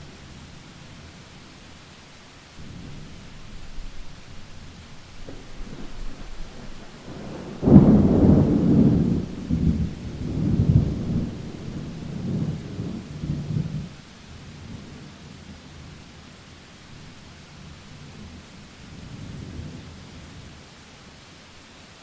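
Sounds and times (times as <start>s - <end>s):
faint hiss of rain: 0.0s - 22.0s
thunder rumbling: 2.6s - 14.0s.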